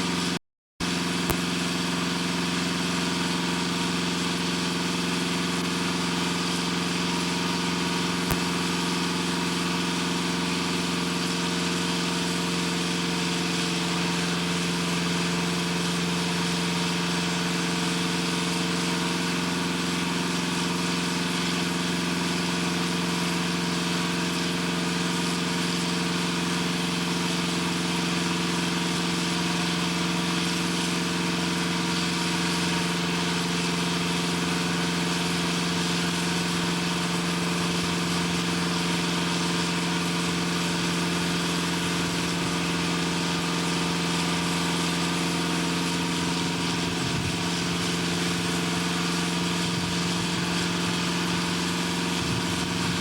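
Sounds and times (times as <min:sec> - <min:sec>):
heavy industrial machinery drone: 0:22.6 - 0:53.0.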